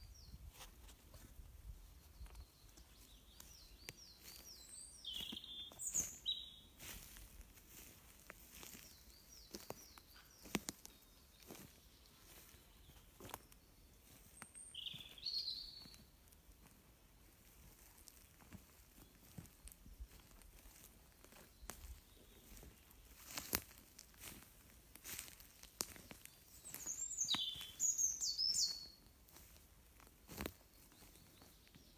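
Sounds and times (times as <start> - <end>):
birds chirping: 2.1 - 16.2, 18.9 - 23.5, 25.0 - 29.0, 30.3 - 31.9
loud bird calls: 4.2 - 6.6, 26.6 - 28.9.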